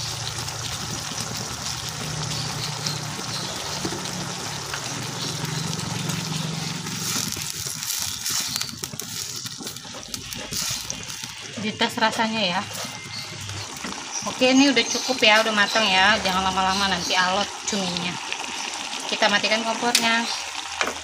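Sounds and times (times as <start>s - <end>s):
food sizzling in a wok: 0.0s - 21.0s
wooden spatula stirring: 0.8s - 17.5s.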